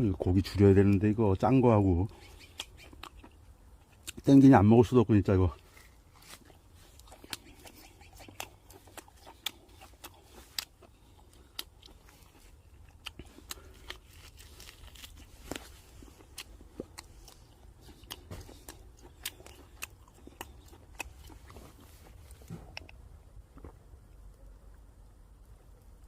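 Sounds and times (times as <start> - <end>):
person chewing and biting ribs: 2.0 - 4.3, 5.5 - 24.0.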